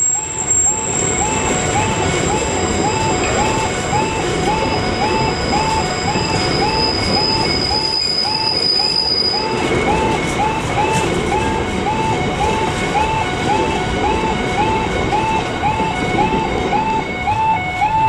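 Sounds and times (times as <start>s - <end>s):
high wheel squeal: 0.0s - 13.6s
repeating rising tone: 0.0s - 18.0s
train wheels rumbling on rail: 0.0s - 18.0s.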